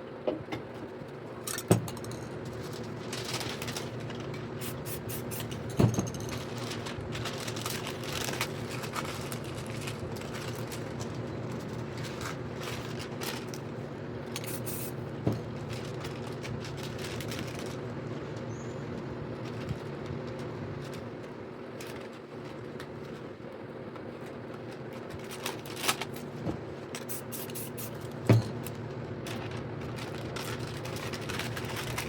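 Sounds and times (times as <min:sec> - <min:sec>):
steady low hum: 0:00.0 - 0:32.0
spray paint can hissing: 0:04.6 - 0:05.6, 0:14.4 - 0:15.0, 0:27.0 - 0:28.0.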